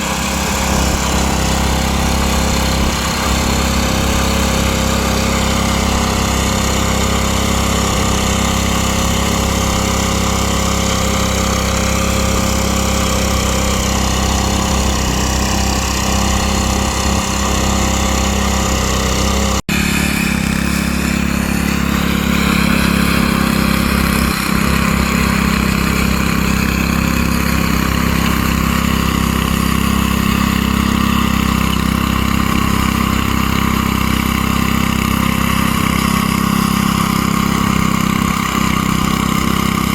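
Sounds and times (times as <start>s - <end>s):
small petrol engine running: 0.0s - 39.9s.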